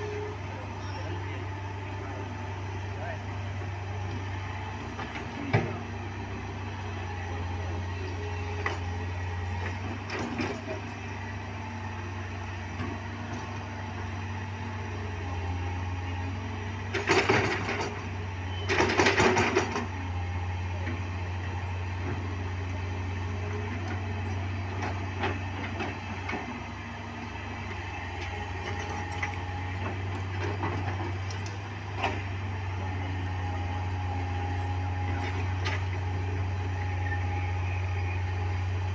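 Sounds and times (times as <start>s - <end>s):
large engine humming: 0.0s - 38.9s.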